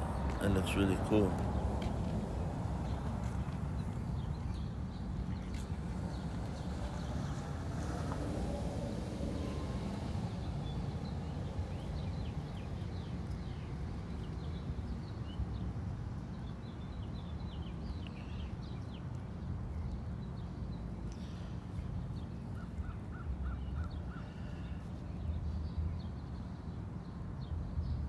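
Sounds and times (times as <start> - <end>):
steady low rumble: 0.0 - 12.5.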